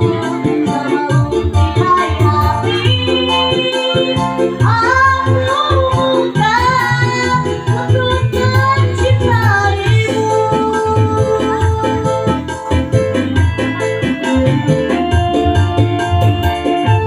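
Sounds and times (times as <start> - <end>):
child singing: 0.0 - 12.4
electronic keyboard with beat: 0.0 - 17.0.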